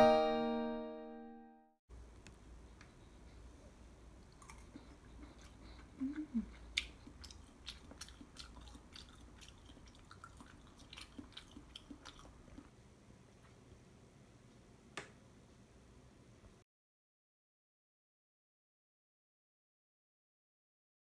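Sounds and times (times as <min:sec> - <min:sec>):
person chewing: 0:04.1 - 0:12.7.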